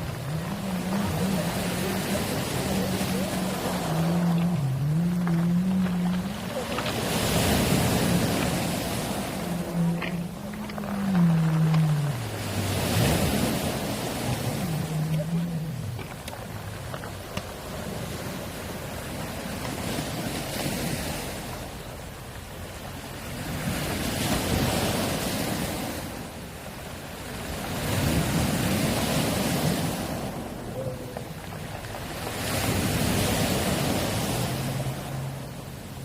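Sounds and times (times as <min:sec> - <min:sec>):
steady low hum: 0:00.0 - 0:19.2
waves on a pebble beach: 0:00.0 - 0:36.0.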